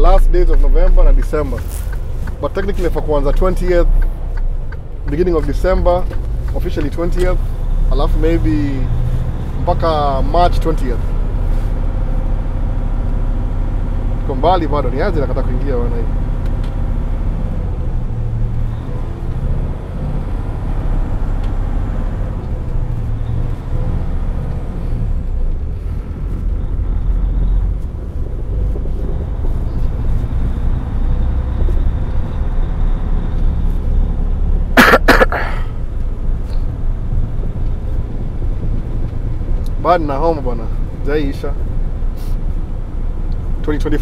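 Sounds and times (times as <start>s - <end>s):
truck diesel engine rumble: 0.0s - 44.0s.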